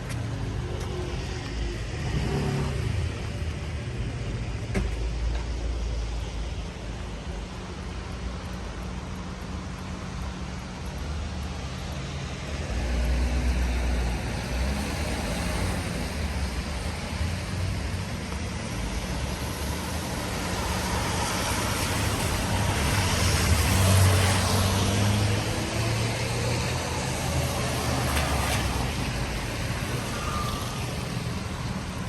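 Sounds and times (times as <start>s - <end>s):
tyre hiss on wet road: 12.7s - 32.0s.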